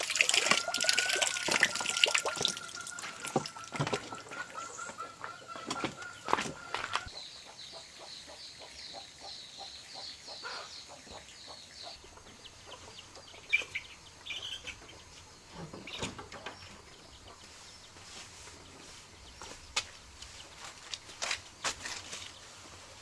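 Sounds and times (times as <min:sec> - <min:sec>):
chickens clucking: 0:00.5 - 0:09.7, 0:10.3 - 0:19.4.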